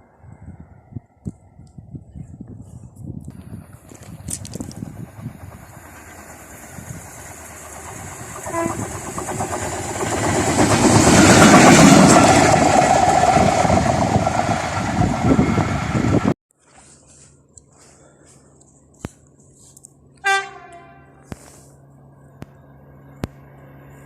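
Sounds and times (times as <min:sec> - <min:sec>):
train passing: 0:03.3 - 0:16.4, 0:18.8 - 0:24.0.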